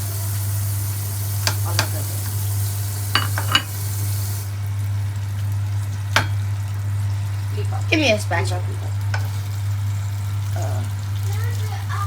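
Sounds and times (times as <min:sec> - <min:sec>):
oil popping: 0:00.0 - 0:12.0
sausages sizzling in a pan: 0:00.0 - 0:12.0.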